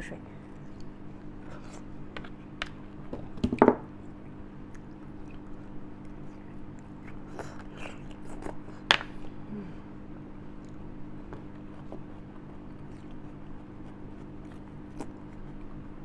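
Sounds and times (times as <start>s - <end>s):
chewing: 4.0s - 9.4s, 10.5s - 16.0s.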